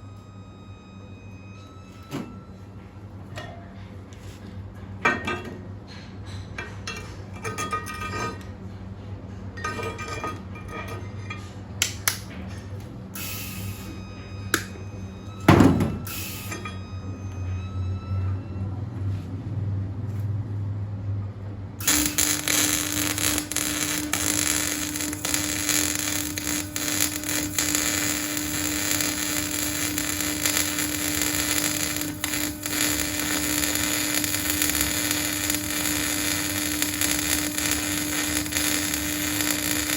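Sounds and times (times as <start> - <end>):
welding arc crackling hiss: 13.2 - 13.9, 16.1 - 16.6, 21.8 - 39.9
constant hum: 20.0 - 39.9.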